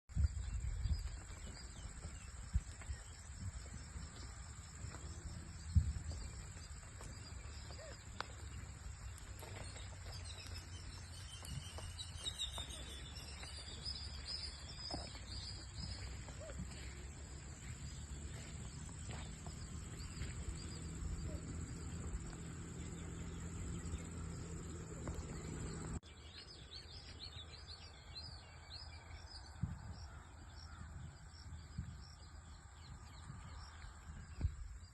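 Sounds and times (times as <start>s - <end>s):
birds chirping: 0.1s - 34.9s
steady low rumble: 0.2s - 26.0s.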